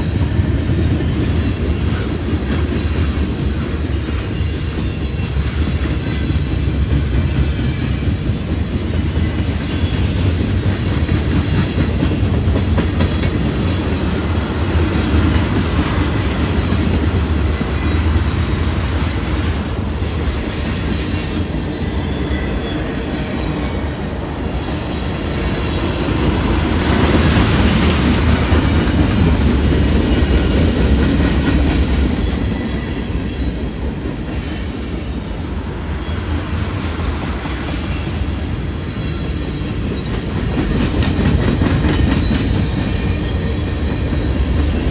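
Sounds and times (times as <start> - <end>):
train wheels clicking on rails: 0.0 - 44.9.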